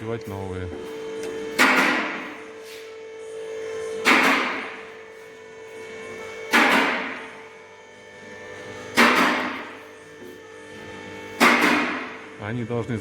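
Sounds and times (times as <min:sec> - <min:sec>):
steady hum: 0:00.0 - 0:13.0
loud sharp knocks echoing: 0:01.5 - 0:02.4, 0:04.0 - 0:04.8, 0:06.5 - 0:07.3, 0:08.9 - 0:09.8, 0:11.4 - 0:12.2.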